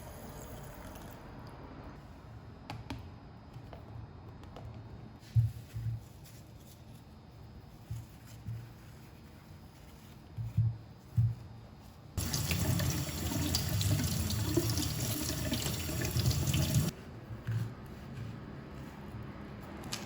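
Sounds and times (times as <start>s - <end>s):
tap water running into sink: 12.2s - 16.9s.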